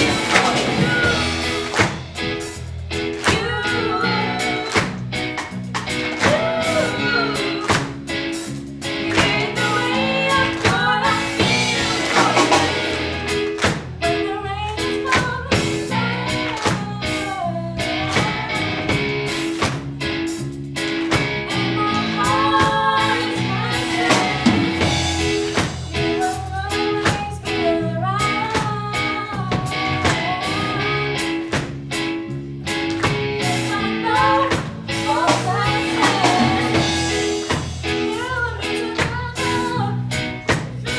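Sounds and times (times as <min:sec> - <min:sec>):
person singing: 0:00.0 - 0:02.0, 0:03.1 - 0:05.0, 0:06.1 - 0:08.0, 0:08.9 - 0:19.0, 0:21.5 - 0:31.5, 0:33.4 - 0:40.9
drums: 0:00.0 - 0:40.9
guitar: 0:00.0 - 0:40.9.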